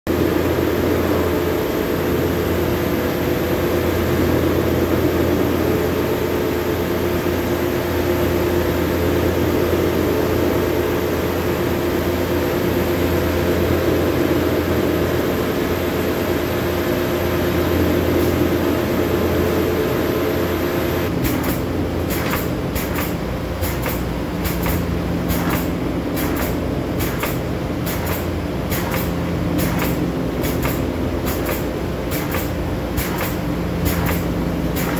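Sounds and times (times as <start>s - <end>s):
machine humming: 0.1s - 34.9s
irregular sharp clicks: 21.2s - 34.9s.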